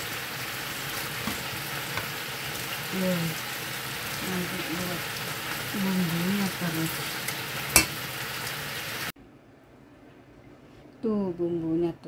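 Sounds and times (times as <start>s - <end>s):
chicken sizzling in oil: 0.0s - 9.1s.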